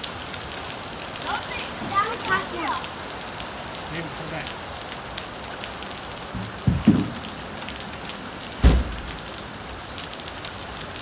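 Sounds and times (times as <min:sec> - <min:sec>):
hail and rain falling: 0:00.0 - 0:11.0
dull thumps: 0:06.4 - 0:07.2, 0:08.6 - 0:09.4.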